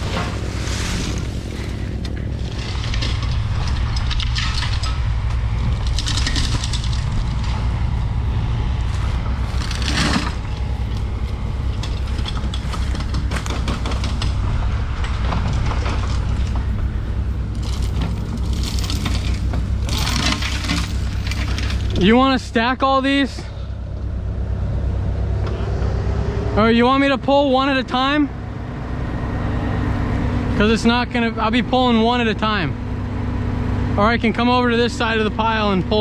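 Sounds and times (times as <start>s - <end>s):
branches dragged along ground: 0.0s - 13.6s, 14.3s - 22.0s
tractor engine running: 0.0s - 36.0s
branches snapping: 8.8s - 14.4s, 17.5s - 22.0s.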